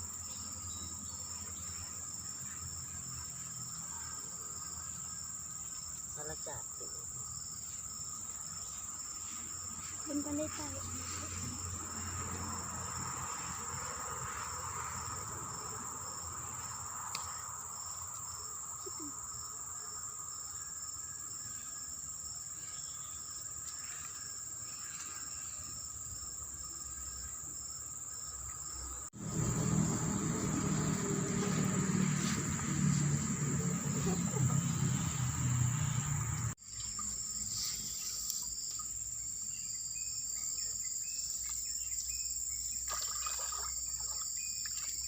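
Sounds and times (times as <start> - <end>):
high-pitched insect chorus: 0.0 - 45.0
low rumble: 29.2 - 36.5.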